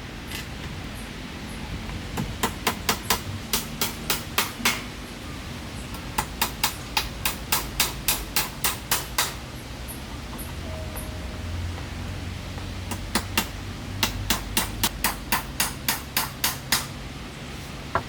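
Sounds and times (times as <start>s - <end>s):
hammer striking nails: 2.2s - 4.9s, 6.0s - 9.4s, 12.9s - 16.9s.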